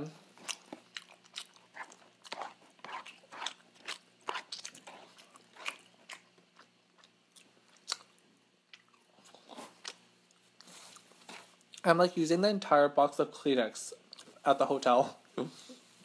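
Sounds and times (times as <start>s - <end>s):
close chewing: 0.3s - 11.9s.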